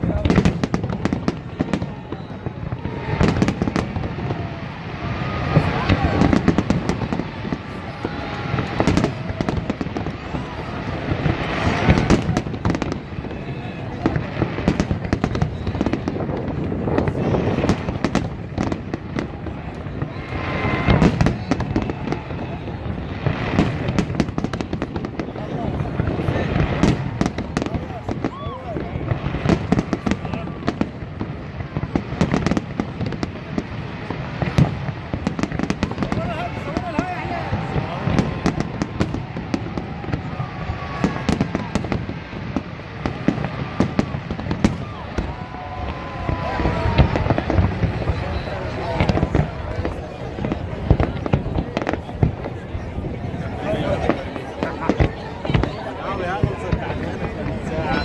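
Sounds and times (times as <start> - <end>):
fireworks bangs and crackles: 0.0 - 58.0
loud fireworks booms: 0.0 - 58.0.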